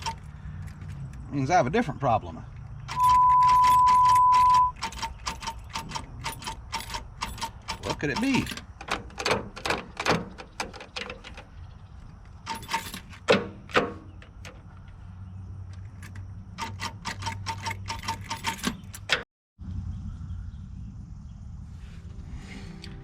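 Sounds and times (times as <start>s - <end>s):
sharp metallic clicks: 0.0s - 1.3s, 2.6s - 15.0s, 15.6s - 19.3s.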